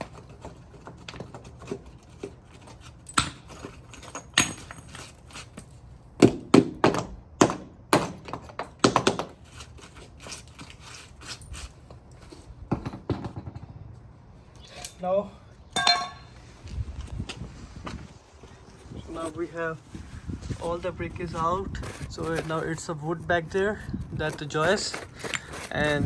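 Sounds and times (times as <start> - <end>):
brick knocking and cracking: 0.0 - 9.4, 12.7 - 13.8.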